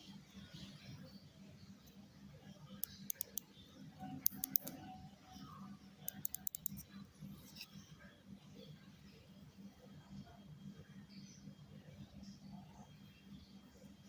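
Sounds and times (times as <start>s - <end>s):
wireless mouse clicking: 2.8s - 3.5s, 4.2s - 4.8s, 6.0s - 6.8s.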